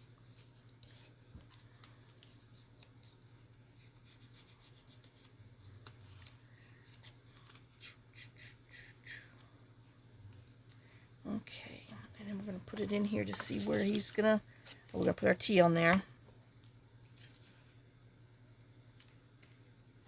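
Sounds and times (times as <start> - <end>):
faint low hum: 0.0 - 20.0
paper rustling: 0.2 - 7.9, 11.6 - 15.3.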